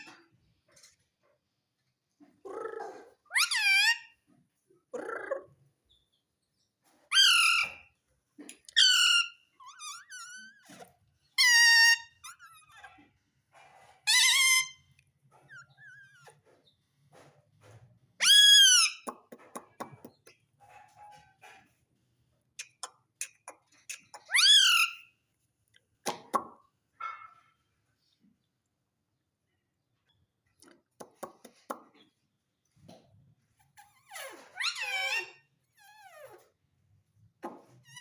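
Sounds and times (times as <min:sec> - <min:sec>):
parrot squawking: 0:02.5 - 0:04.2, 0:23.9 - 0:25.1
parrot chattering: 0:04.9 - 0:05.6, 0:22.6 - 0:25.1.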